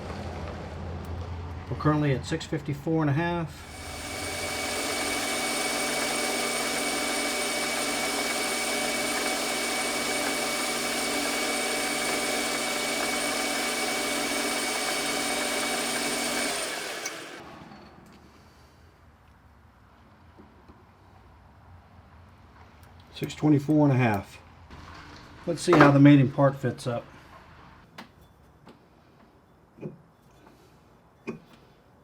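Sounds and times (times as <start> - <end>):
metal lathe running: 3.6 - 17.4.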